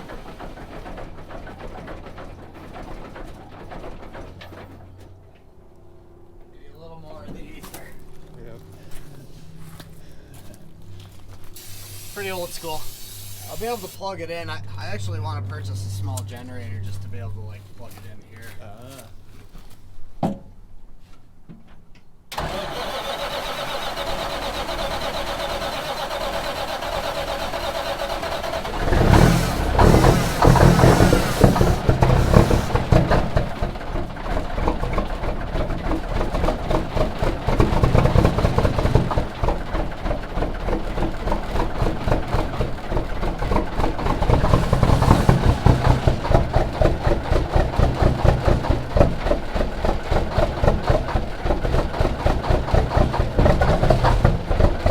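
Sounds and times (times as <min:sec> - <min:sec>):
diesel engine starter cranking: 0:00.0 - 0:05.1, 0:11.5 - 0:17.4, 0:22.3 - 0:54.9
diesel engine firing unevenly: 0:00.0 - 0:05.3, 0:11.6 - 0:17.6, 0:22.3 - 0:54.9.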